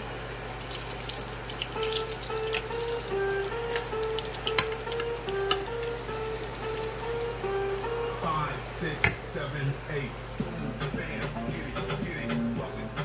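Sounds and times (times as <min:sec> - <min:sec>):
food sizzling in a pan: 0:00.0 - 0:09.4
background music: 0:01.8 - 0:09.2, 0:10.4 - 0:13.0.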